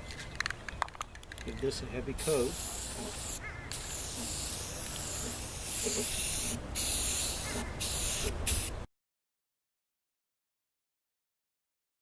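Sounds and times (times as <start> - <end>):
aerosol spray can hissing: 2.2 - 8.8.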